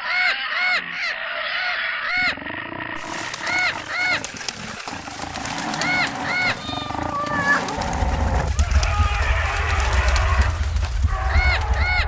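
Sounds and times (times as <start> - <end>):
harsh crow-like caws: 0.0 - 2.4, 5.4 - 12.0
steady low rumble: 7.7 - 12.0.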